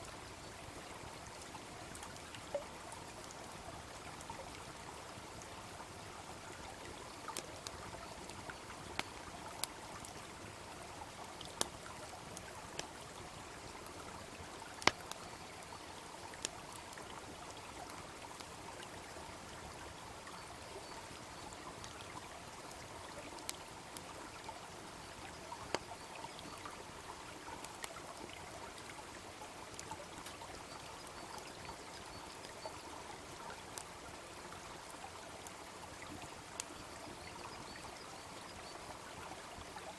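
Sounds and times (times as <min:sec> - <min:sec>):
babbling brook: 0:00.0 - 0:39.9
wood fire crackling: 0:14.5 - 0:17.0.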